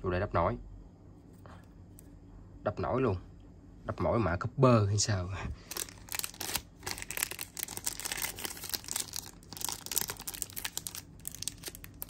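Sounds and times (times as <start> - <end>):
crinkling and rustling handling: 5.5 - 12.0.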